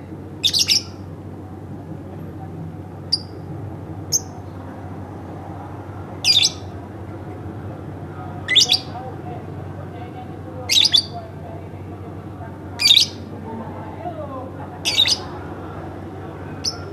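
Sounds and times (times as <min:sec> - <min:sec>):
high bird chirps: 0:00.4 - 0:01.0, 0:06.2 - 0:06.7, 0:08.5 - 0:08.9, 0:10.7 - 0:11.1, 0:12.8 - 0:13.3, 0:14.9 - 0:15.3
lovebird chattering: 0:00.4 - 0:01.0, 0:03.1 - 0:03.4, 0:06.2 - 0:06.7, 0:08.4 - 0:09.0, 0:10.7 - 0:11.2, 0:12.8 - 0:13.3, 0:14.8 - 0:15.3, 0:16.6 - 0:16.9.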